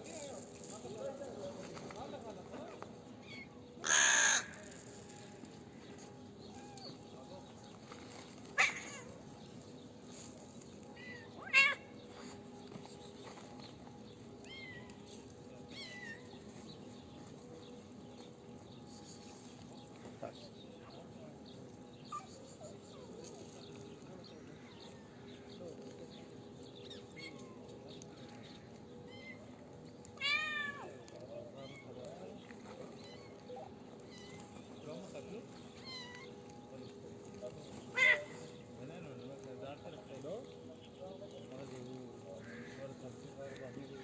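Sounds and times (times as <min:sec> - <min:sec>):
cats meowing: 0:11.0 - 0:11.9, 0:14.4 - 0:16.3, 0:29.1 - 0:32.0, 0:32.8 - 0:34.6, 0:35.8 - 0:36.6, 0:37.9 - 0:38.5
cat meowing loudly: 0:11.4 - 0:11.9.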